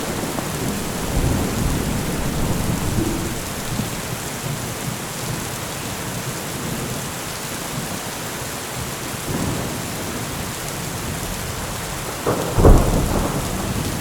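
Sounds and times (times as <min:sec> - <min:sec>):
low rumble of thunder: 0:00.0 - 0:04.5, 0:11.4 - 0:14.0
heavy rain hissing: 0:00.0 - 0:04.8.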